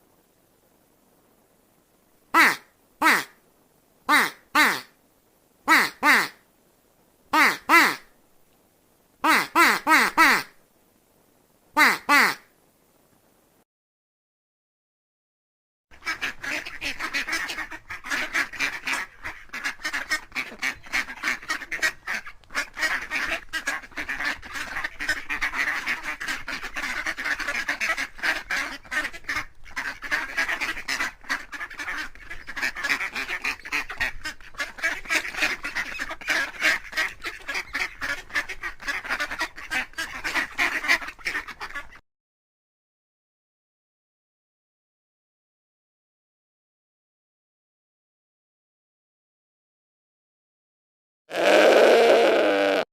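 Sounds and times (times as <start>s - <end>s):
ducks quacking: 2.4s - 3.4s, 4.1s - 4.9s, 5.7s - 6.4s, 7.4s - 8.1s, 9.2s - 10.6s, 11.8s - 12.4s, 16.0s - 42.0s, 51.3s - 52.8s.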